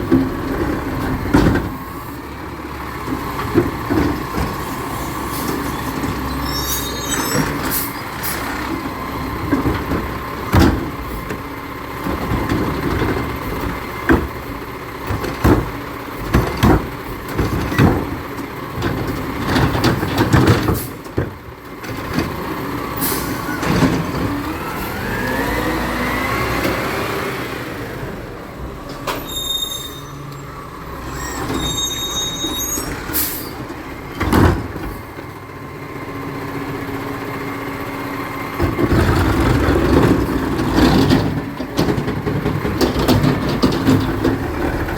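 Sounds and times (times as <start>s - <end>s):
truck engine running: 0.0s - 29.1s, 30.2s - 44.9s
short high squeals: 5.0s - 8.6s, 29.1s - 33.6s
clanks and bangs: 38.6s - 44.9s.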